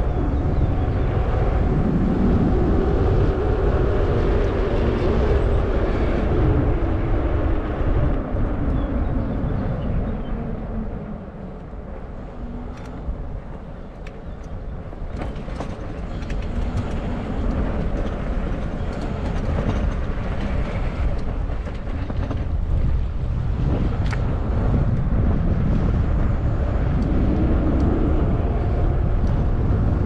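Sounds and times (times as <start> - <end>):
wind buffeting microphone: 0.0 - 30.0
bike clicks and rattles: 12.4 - 25.1.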